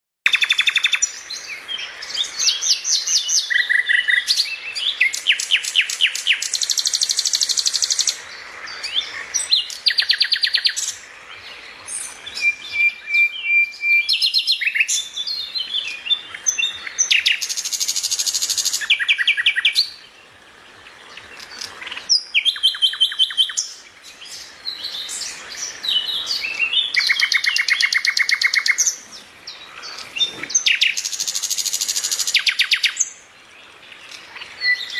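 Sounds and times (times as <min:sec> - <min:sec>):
small birds chirping and trilling: 0:00.3 - 0:34.9.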